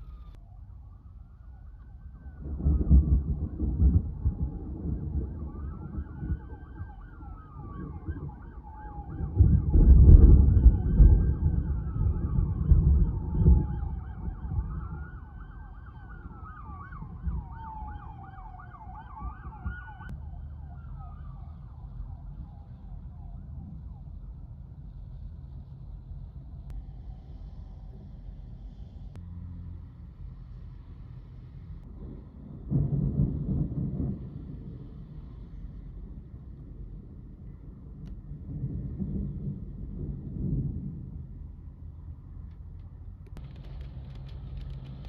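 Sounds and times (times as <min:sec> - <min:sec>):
emergency siren wailing: 0:00.0 - 0:24.4.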